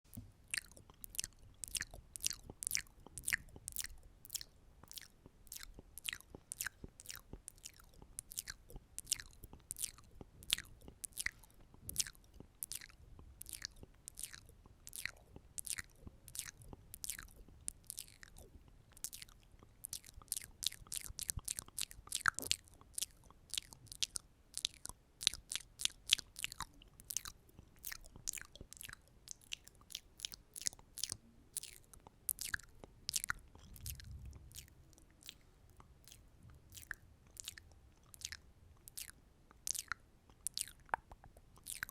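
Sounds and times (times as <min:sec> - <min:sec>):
wet mouth clicks and pops: 0:00.1 - 0:41.9.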